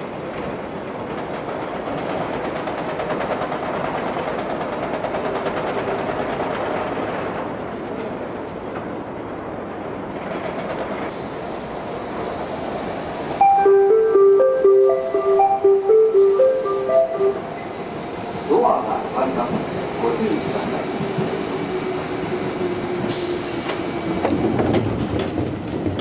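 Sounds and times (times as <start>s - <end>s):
train rumble and wheel clatter: 0.0s - 26.0s
chime melody: 13.4s - 17.6s.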